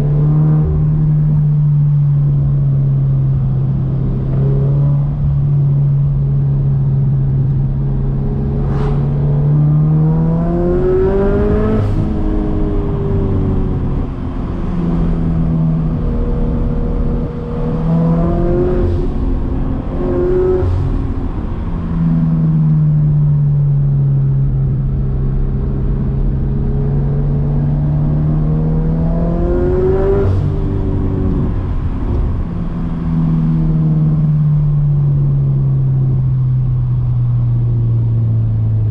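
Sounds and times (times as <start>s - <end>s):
car engine revving: 0.0s - 23.1s, 24.7s - 35.4s.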